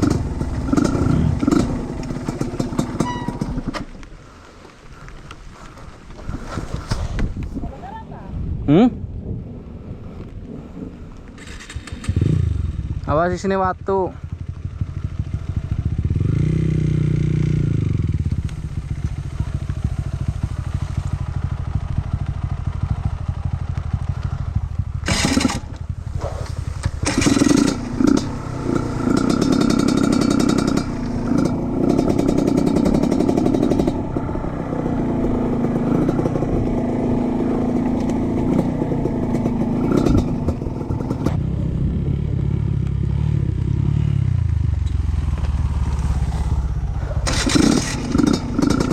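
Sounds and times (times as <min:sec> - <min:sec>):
motorcycle engine revving: 0:00.0 - 0:03.9, 0:11.4 - 0:48.9
sharp clattering knocks: 0:25.0 - 0:34.0.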